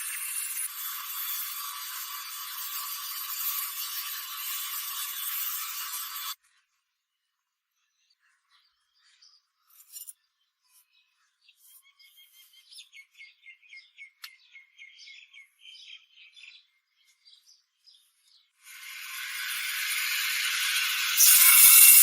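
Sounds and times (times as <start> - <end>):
faint bird chirping: 6.4 - 18.6.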